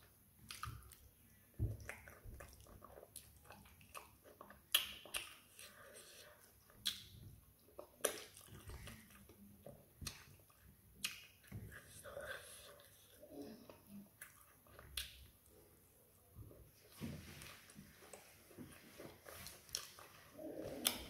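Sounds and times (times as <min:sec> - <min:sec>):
wet mouth clicks and smacks: 0:00.5 - 0:01.0, 0:01.8 - 0:05.8, 0:06.6 - 0:07.2, 0:07.8 - 0:09.4, 0:10.0 - 0:11.6, 0:14.2 - 0:15.3.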